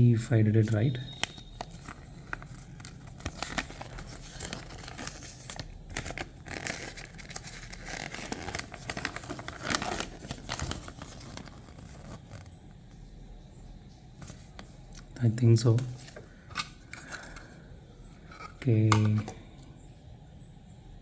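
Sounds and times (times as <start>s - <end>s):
crinkly plastic rustling: 0.4s - 12.9s, 14.2s - 17.6s.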